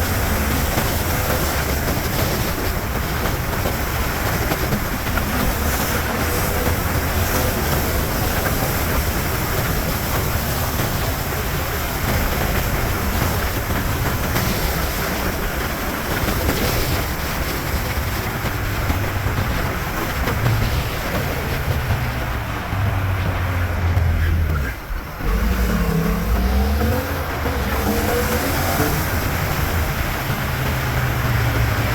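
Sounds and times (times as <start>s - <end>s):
motorcycle engine cruising: 17.9s - 31.9s.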